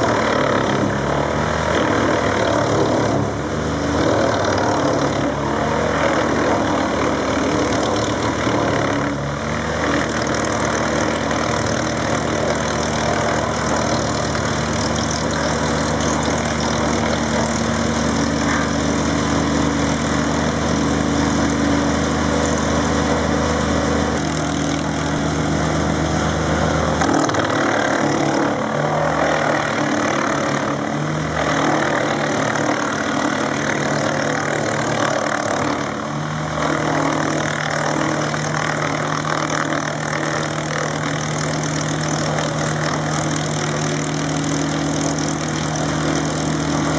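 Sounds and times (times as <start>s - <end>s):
wood chipper running: 0.0s - 46.9s.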